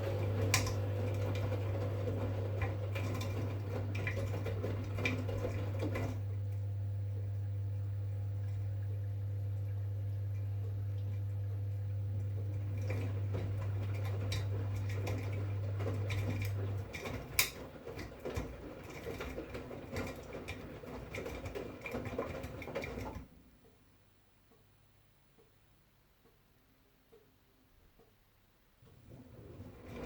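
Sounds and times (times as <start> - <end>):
laundry sloshing and clicking in drum: 0.0 - 7.5, 8.2 - 23.4, 28.8 - 30.0
washing machine hum: 0.0 - 30.0.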